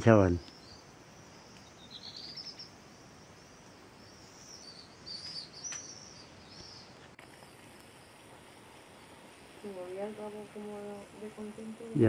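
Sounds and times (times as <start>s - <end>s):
faint high bird chirps: 0.3s - 7.6s.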